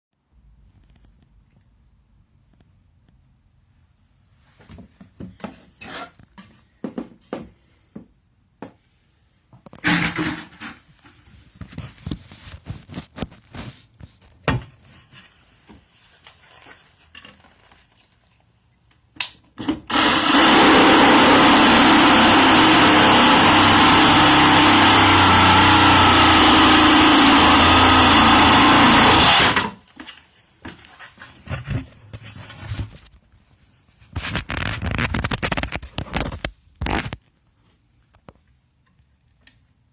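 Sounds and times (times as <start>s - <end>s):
reciprocating saw running: 19.9s - 29.7s.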